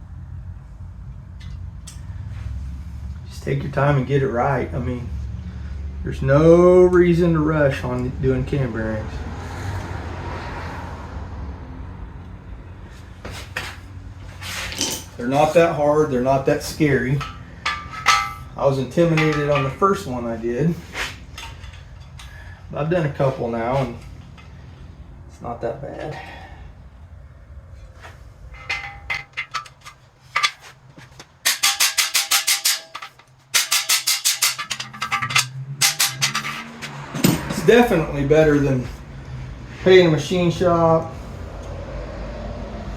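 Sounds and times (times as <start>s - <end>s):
steady low hum: 12.3s - 36.7s
metal tools clinking: 14.4s - 22.6s, 27.8s - 38.0s
sharp metallic knocks: 16.7s - 20.1s, 28.5s - 37.8s.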